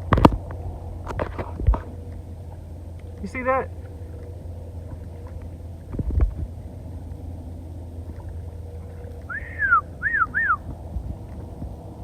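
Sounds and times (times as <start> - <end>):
low thumps: 0.0 - 7.4
whistled notes: 9.2 - 10.6.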